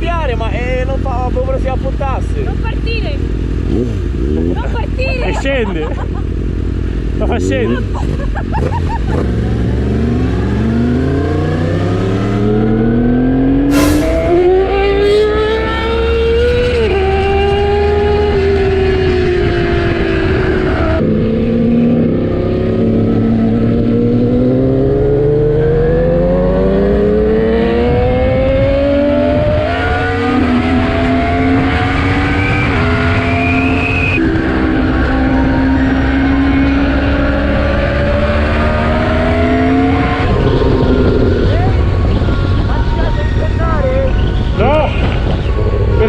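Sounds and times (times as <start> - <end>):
motorcycle engine accelerating: 0.0 - 46.0
wind noise: 13.6 - 46.0.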